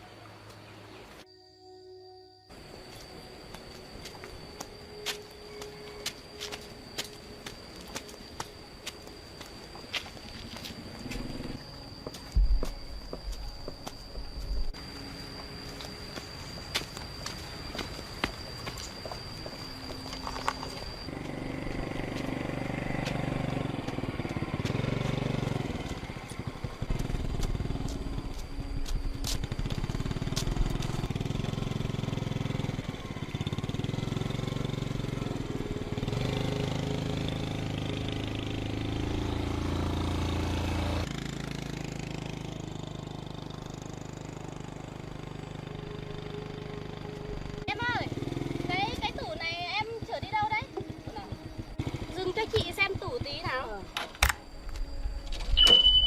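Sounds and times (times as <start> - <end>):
small engine running: 14.8 - 56.0.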